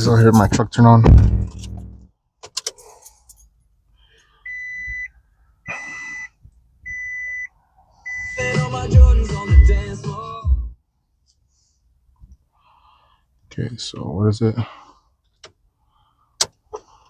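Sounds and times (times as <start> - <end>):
loud low rumble: 1.0 - 2.1.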